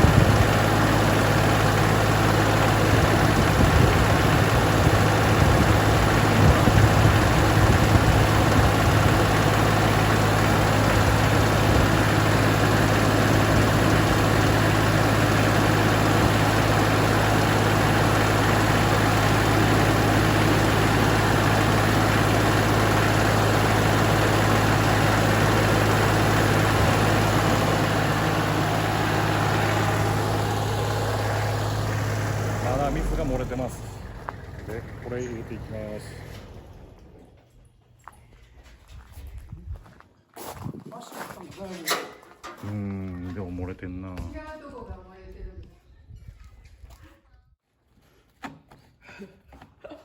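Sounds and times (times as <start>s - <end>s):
tractor engine idling: 0.0s - 38.2s.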